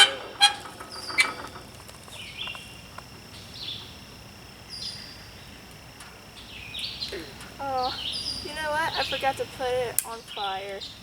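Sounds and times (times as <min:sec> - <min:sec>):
bird chirping: 0:00.0 - 0:04.0, 0:04.7 - 0:05.7, 0:06.3 - 0:11.0
faint high insect tone: 0:00.0 - 0:11.0.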